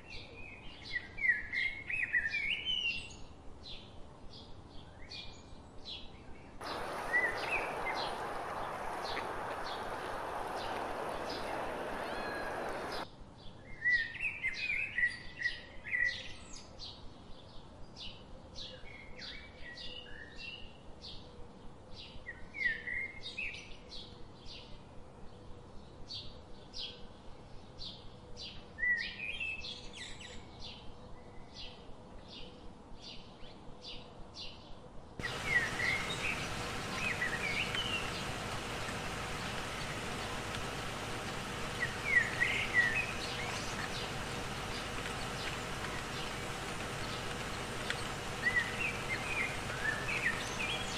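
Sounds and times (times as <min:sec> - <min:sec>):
outdoor background noise: 0:00.0 - 0:50.9
small birds chirping: 0:06.6 - 0:13.1, 0:35.2 - 0:50.9
faint regular ticking: 0:35.2 - 0:50.9.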